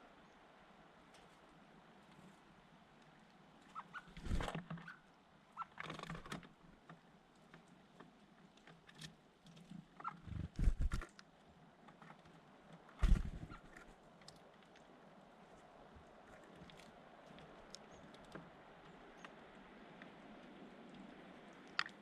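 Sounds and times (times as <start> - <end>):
small birds chirping: 3.6 - 5.9, 13.0 - 14.0, 17.4 - 19.6
wings rustling and fluttering: 3.6 - 6.6, 8.8 - 11.2, 11.9 - 22.0.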